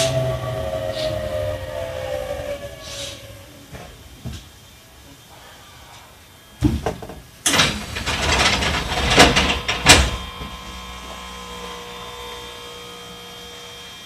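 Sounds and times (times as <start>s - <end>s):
train low hum: 0.0s - 6.6s
faint whining equipment tones: 0.0s - 14.0s
train clatter: 7.5s - 10.3s.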